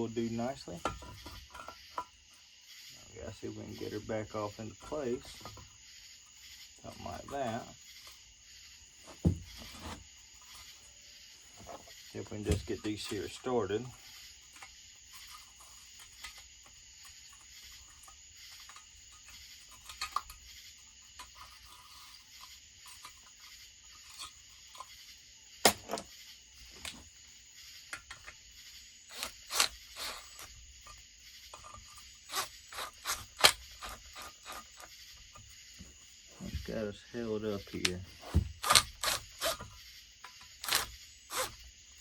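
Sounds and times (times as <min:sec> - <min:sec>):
light scrapes of bolts: 0:00.1 - 0:02.4, 0:03.0 - 0:08.3, 0:08.9 - 0:25.1.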